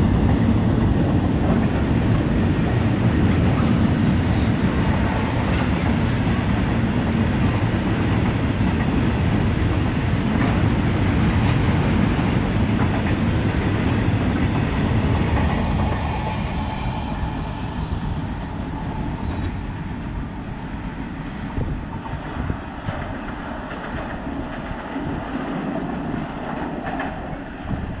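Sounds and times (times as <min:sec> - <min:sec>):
freight train wheel rumble: 0:00.0 - 0:28.0.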